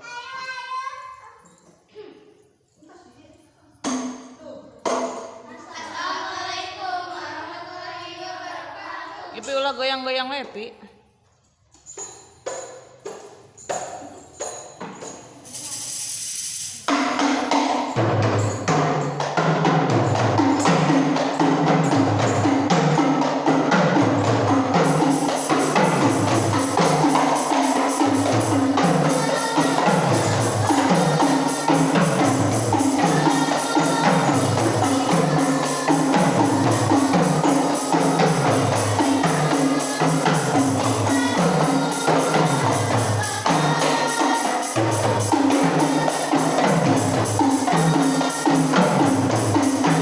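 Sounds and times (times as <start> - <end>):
frame drums playing rhythm: 11.9 - 50.0.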